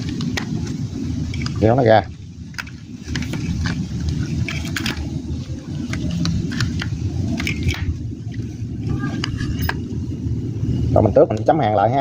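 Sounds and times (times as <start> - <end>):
steady low rumble: 0.0 - 12.0
small clicks and rustles: 2.5 - 9.8.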